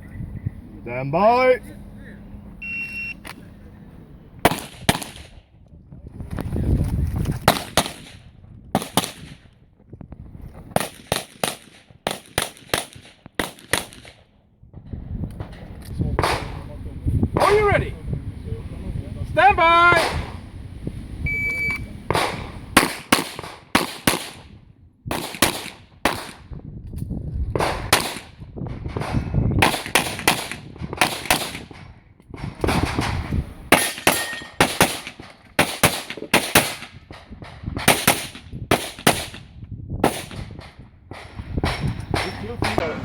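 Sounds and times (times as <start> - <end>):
short electronic beep: 2.6 - 3.2, 21.3 - 21.9
handgun shots: 4.5 - 5.3, 7.4 - 8.1, 10.8 - 14.2, 22.1 - 24.4, 25.1 - 26.4, 27.6 - 28.3, 29.0 - 31.6, 33.7 - 37.0, 37.8 - 39.4.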